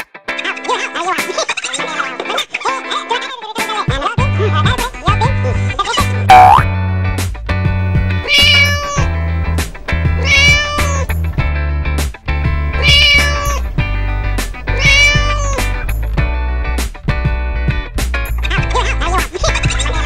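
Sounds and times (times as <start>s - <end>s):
upbeat children's music: 0.3s - 6.6s, 12.8s - 20.0s
cat meowing: 8.1s - 9.2s, 9.9s - 11.2s, 12.7s - 15.9s.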